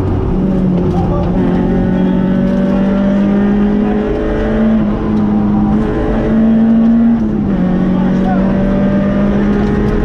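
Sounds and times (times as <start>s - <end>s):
rally car engine at speed: 0.0s - 10.0s.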